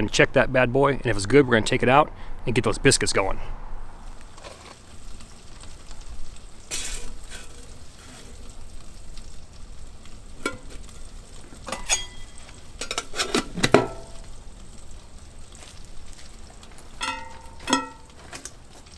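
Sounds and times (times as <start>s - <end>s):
bacon sizzling in a pot: 4.0s - 18.9s
metal cookware clanking: 6.6s - 8.6s, 10.0s - 14.5s, 16.7s - 18.9s.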